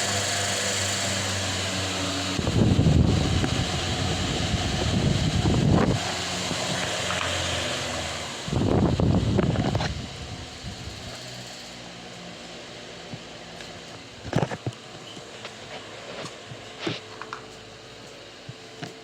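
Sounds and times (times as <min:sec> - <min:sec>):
electric fan motor hum: 0:00.0 - 0:19.0
wind noise on microphone: 0:02.2 - 0:07.3, 0:08.2 - 0:11.1.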